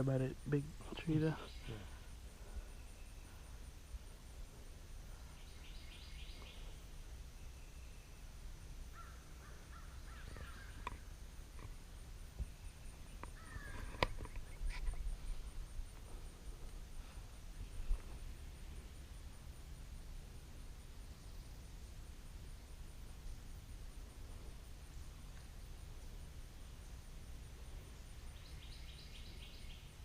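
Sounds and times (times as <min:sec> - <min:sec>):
birds chirping gliding calls: 0:00.0 - 0:11.1, 0:12.5 - 0:19.1, 0:24.2 - 0:30.0
low steady rumble: 0:00.0 - 0:30.0.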